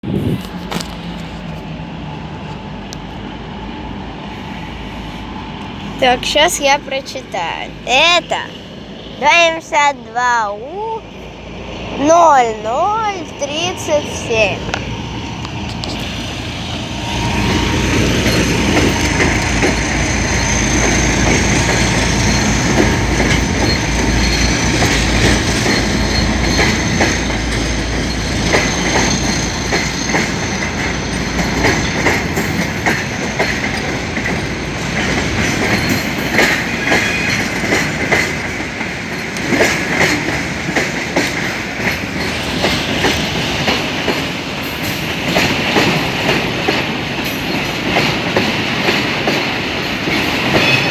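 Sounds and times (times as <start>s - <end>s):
diesel locomotive engine rumble: 0.0s - 50.9s
train wagons clattering over rails: 11.1s - 50.9s
wheel squeal: 15.8s - 32.6s.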